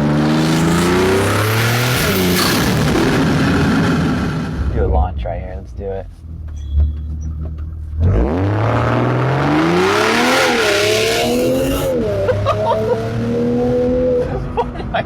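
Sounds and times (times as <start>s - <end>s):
car engine revving and accelerating: 0.0s - 4.6s, 8.0s - 14.6s.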